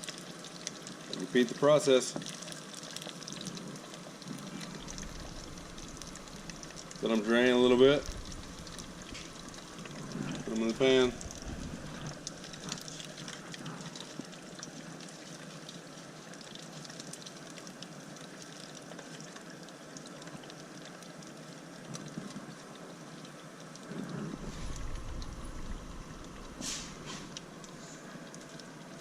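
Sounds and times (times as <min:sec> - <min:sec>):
oil sizzling in a deep fryer: 0:00.0 - 0:29.0
low bump: 0:24.3 - 0:27.5.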